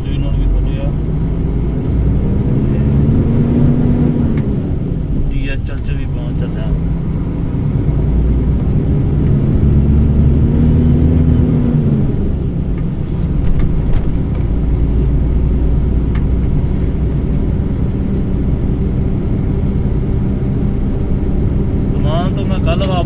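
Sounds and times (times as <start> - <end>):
truck diesel engine running: 0.0 - 23.0.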